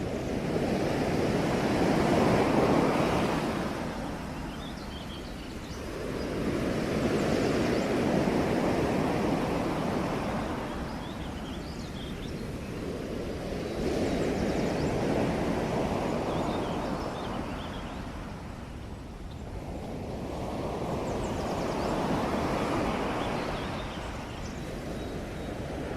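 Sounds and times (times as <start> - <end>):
ocean waves washing ashore: 0.0 - 25.9.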